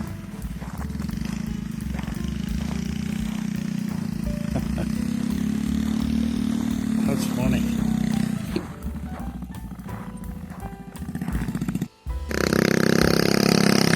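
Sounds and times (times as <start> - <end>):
mini bike engine running: 0.0 - 8.7.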